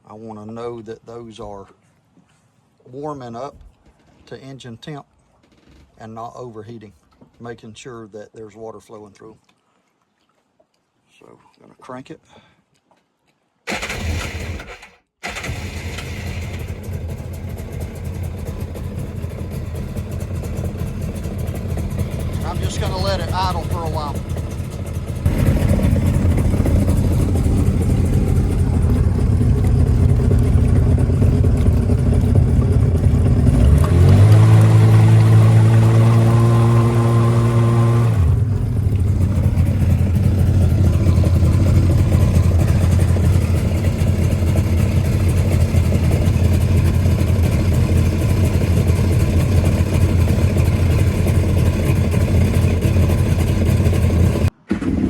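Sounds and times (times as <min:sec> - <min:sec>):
jet ski engine idling: 0:15.2 - 0:54.5.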